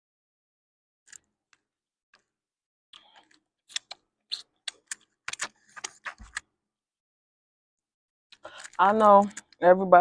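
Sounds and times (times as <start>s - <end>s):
chewing clicks and smacks: 3.7s - 5.9s.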